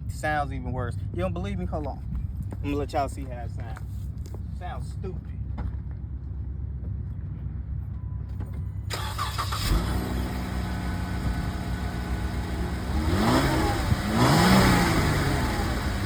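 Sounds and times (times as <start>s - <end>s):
car engine running: 8.3s - 16.0s
car engine revving: 8.9s - 16.0s.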